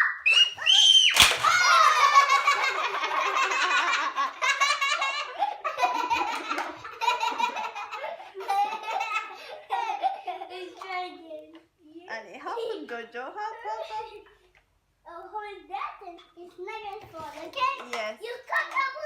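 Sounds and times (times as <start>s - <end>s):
children laughing and giggling: 0.0s - 11.6s, 13.6s - 14.6s, 17.5s - 19.0s.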